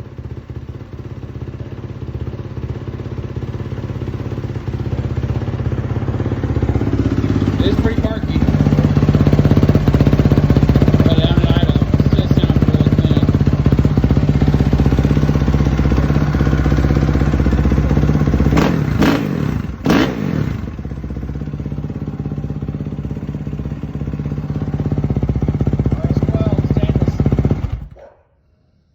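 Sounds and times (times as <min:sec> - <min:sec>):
dirt bike idling: 0:00.0 - 0:28.0
engine throttle blips: 0:04.6 - 0:28.0.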